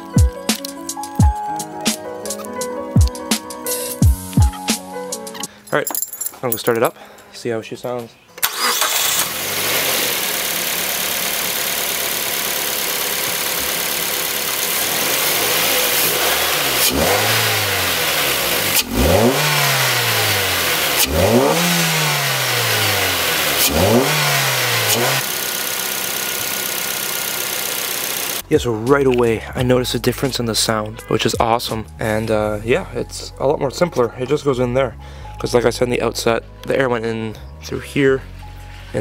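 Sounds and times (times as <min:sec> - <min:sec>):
car engine idling and revving: 0:08.4 - 0:28.4
engine intake induction noise: 0:08.4 - 0:28.4.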